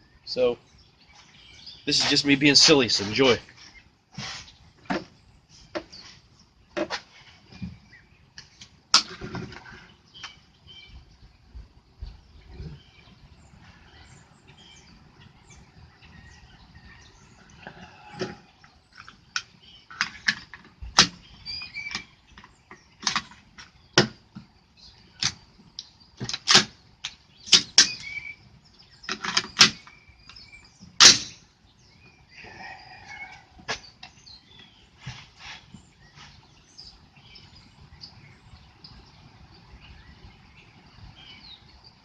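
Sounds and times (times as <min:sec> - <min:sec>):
faint bird chirps: 0:27.3 - 0:29.0, 0:31.7 - 0:42.0.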